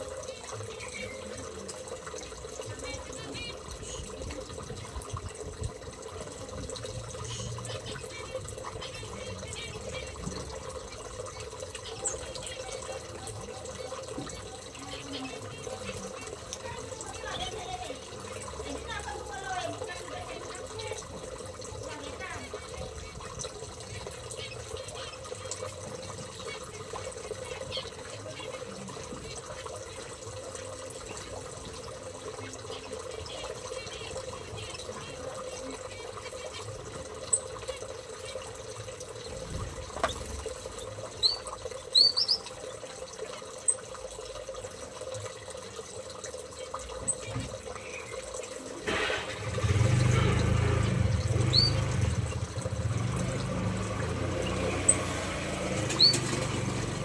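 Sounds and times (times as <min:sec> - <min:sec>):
birds chirping: 0:07.1 - 0:30.1, 0:39.2 - 0:42.6, 0:46.9 - 0:57.0.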